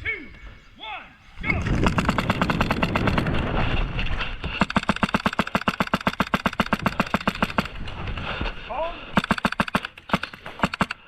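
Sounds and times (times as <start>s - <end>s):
airsoft rifle firing full auto: 1.6s - 3.5s, 4.6s - 7.9s, 9.2s - 11.0s.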